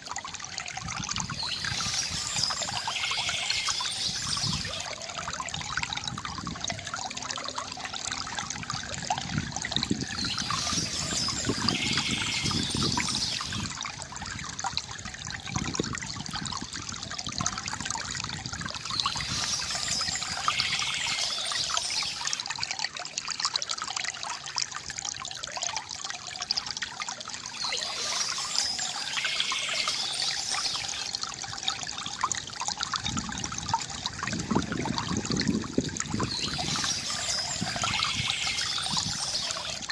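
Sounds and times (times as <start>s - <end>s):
fountain water trickling: 0.0s - 39.9s
bird chirping: 1.3s - 4.9s, 10.0s - 13.6s, 18.8s - 22.4s, 27.5s - 31.1s, 36.2s - 39.9s.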